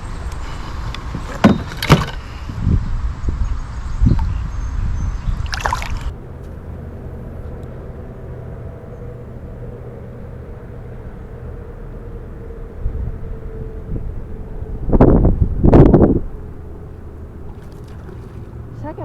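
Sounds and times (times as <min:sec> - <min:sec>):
low rumble of drifting boat: 0:00.0 - 0:19.0
knocks on boat: 0:01.1 - 0:02.2
short splash: 0:05.4 - 0:06.1, 0:17.5 - 0:18.6
water sloshing around kayak: 0:05.4 - 0:07.6, 0:17.2 - 0:19.0.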